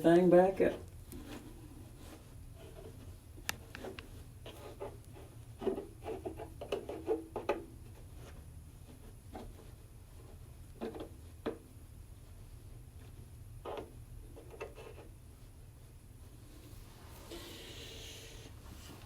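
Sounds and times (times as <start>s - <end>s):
insulation rustling: 7.9s - 19.0s.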